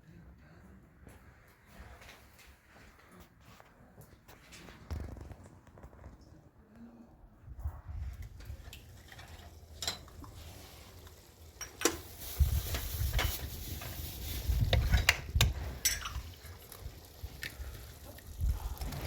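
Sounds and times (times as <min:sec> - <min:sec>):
metal utensils clinking on pot: 0:08.8 - 0:10.5, 0:11.6 - 0:13.5, 0:14.8 - 0:16.6.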